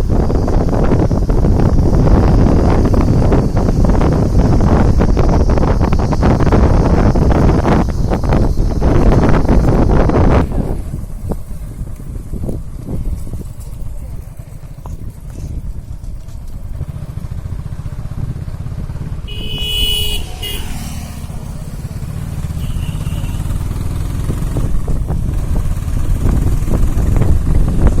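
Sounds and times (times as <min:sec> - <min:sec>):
vehicle rumble: 0:00.0 - 0:28.0
horn honking: 0:19.2 - 0:23.7.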